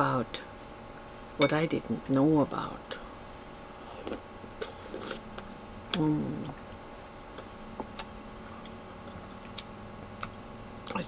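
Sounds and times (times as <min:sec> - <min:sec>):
person chewing: 0:03.8 - 0:06.0.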